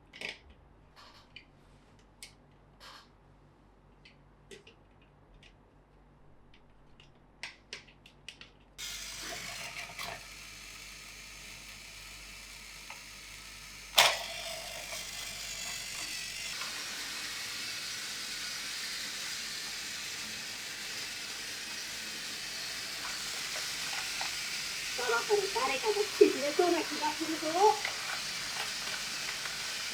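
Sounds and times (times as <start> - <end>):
plastic toy parts clicking: 7.4 - 29.9
mechanical whir: 8.8 - 29.9.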